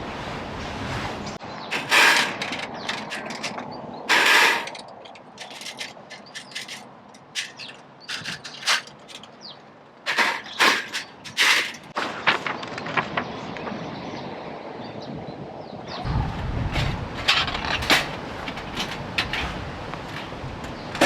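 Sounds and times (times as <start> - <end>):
scraping rushes: 1.7 - 9.3
gear clicking and rattling: 1.9 - 11.9.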